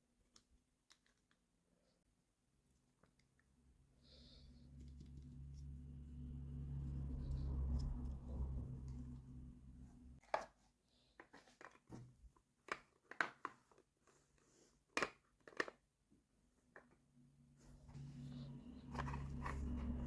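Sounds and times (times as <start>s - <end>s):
steady low hum: 3.8s - 10.2s, 17.3s - 20.0s.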